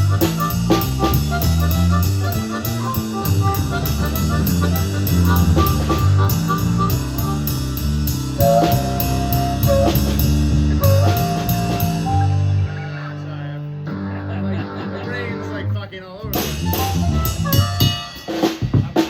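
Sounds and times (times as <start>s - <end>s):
band music: 0.0s - 19.0s
cymbal ticking: 2.4s - 12.0s
held high note: 8.4s - 12.7s.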